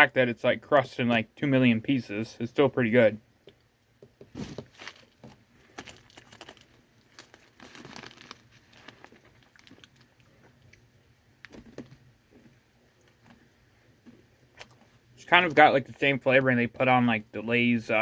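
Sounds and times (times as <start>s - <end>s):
faint crunching: 4.3s - 17.2s
wrapper crinkling: 4.4s - 10.4s.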